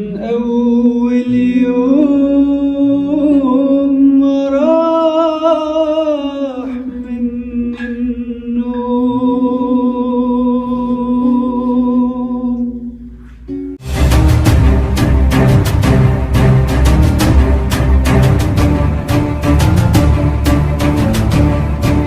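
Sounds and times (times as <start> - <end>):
man singing with vibrato: 0.0 - 13.0
loud music: 13.8 - 22.0.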